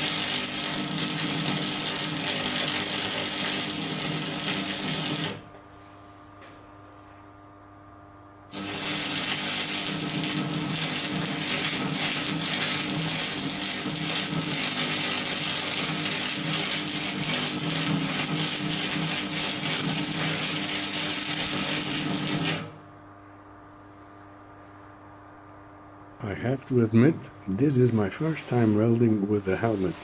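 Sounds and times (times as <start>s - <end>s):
welding arc crackling: 0.0s - 5.6s, 8.5s - 22.8s, 26.3s - 30.0s.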